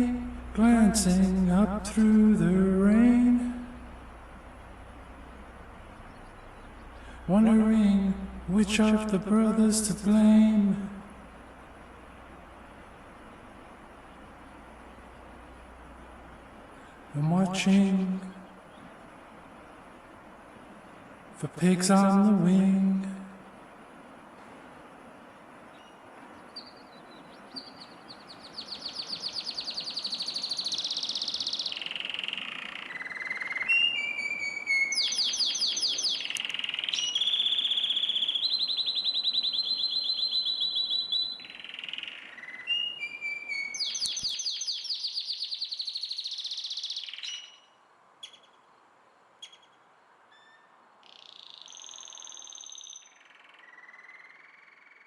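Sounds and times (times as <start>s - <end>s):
songbird singing trills: 0.0s - 16.2s, 25.6s - 48.8s, 49.4s - 55.0s
background hiss: 0.0s - 55.0s.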